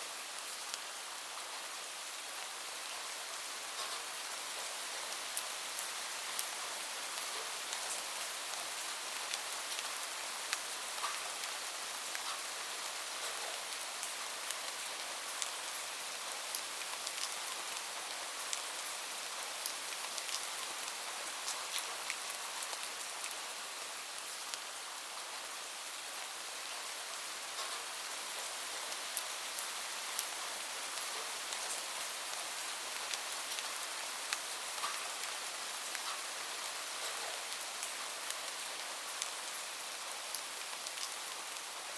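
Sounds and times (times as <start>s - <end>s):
steady rain hiss: 0.0s - 41.9s
raindrops ticking on a surface: 3.7s - 24.7s, 27.4s - 41.8s.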